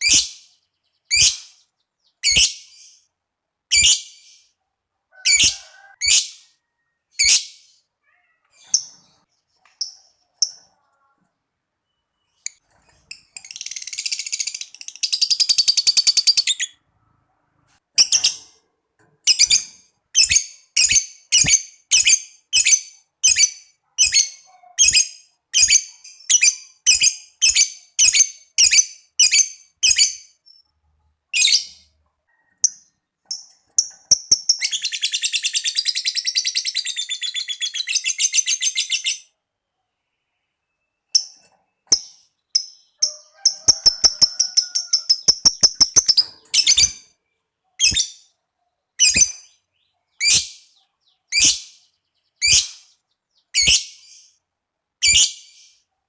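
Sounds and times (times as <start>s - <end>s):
lovebird sharp chirps: 0.0s - 3.1s, 3.7s - 4.6s, 11.8s - 16.8s, 18.0s - 18.6s, 19.3s - 30.7s, 40.7s - 47.1s, 47.8s - 48.3s, 49.0s - 54.4s, 55.0s - 55.8s
lovebird chattering trill: 41.2s - 47.0s.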